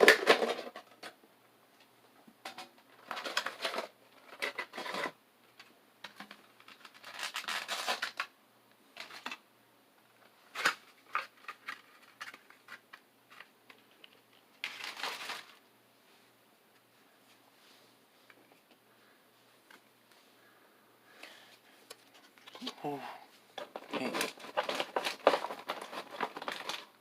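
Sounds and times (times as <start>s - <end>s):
cards rustling and crinkling: 3.0s - 8.3s, 10.5s - 15.6s, 21.8s - 27.0s.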